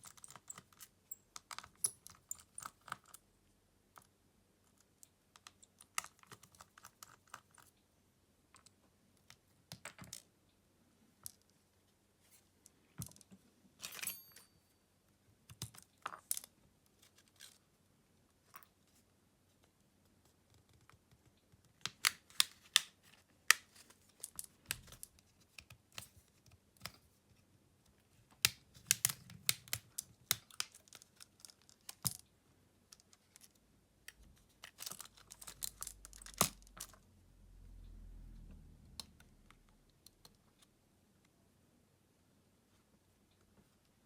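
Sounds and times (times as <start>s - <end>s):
soft low rumble: 37.1s - 39.8s.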